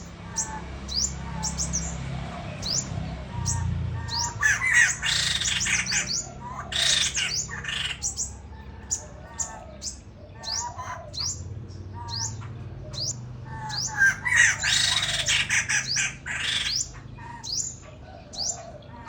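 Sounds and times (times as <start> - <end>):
bird chirping: 0.0 - 19.0
bird squawking harshly: 3.4 - 8.2, 13.6 - 17.7.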